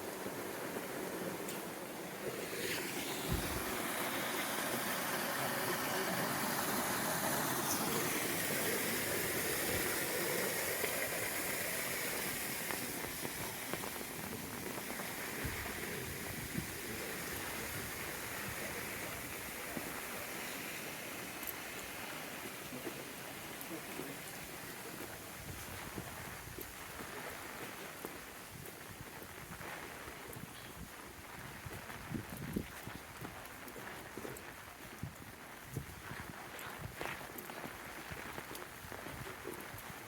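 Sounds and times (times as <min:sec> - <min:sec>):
running water: 0:00.0 - 0:30.9
steady rain falling: 0:00.0 - 0:40.0.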